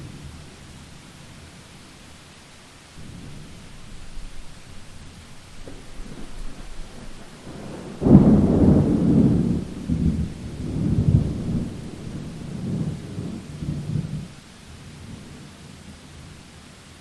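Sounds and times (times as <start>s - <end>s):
rain hissing: 0.0s - 17.0s
thunder rumbling: 3.0s - 14.4s.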